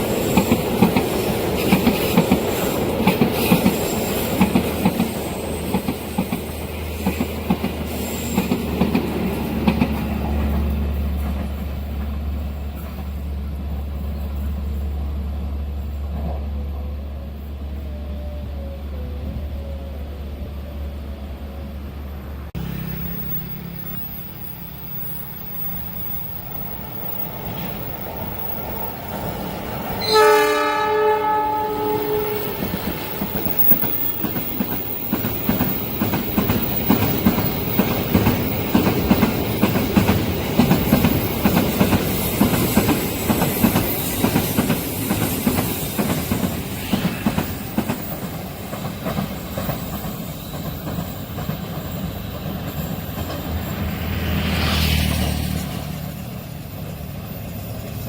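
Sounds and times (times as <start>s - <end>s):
train wheels clattering over rails: 0.0s - 14.6s, 32.3s - 58.0s
train horn: 30.0s - 33.7s.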